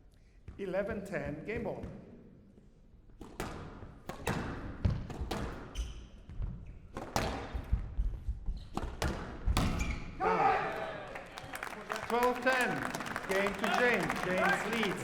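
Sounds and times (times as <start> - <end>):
racket hitting squash ball: 3.2 - 5.9, 8.7 - 10.0
ball striking court walls: 8.7 - 10.0.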